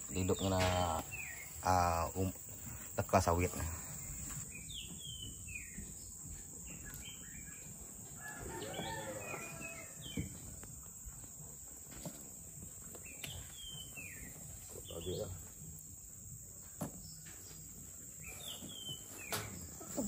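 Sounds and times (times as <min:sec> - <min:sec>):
high insect drone: 0:00.0 - 0:04.5.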